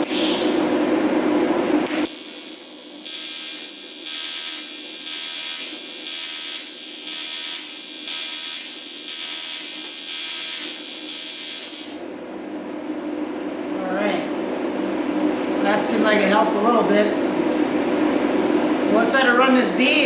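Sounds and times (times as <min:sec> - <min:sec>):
welding arc buzzing and hissing: 0:00.0 - 0:12.1.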